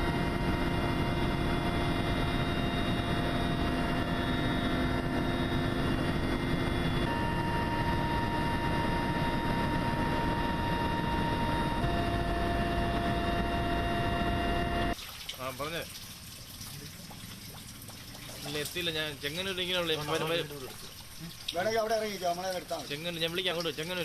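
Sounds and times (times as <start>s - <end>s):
humming tone: 0.0s - 15.0s
loud engine drone: 0.0s - 15.0s.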